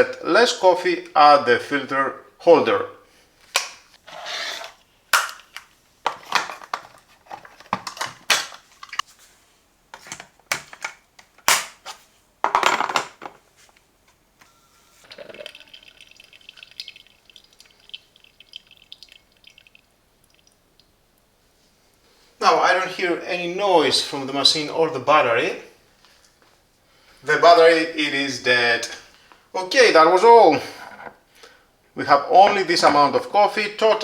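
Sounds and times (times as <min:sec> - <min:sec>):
faint high whine: 0:14.4 - 0:15.8.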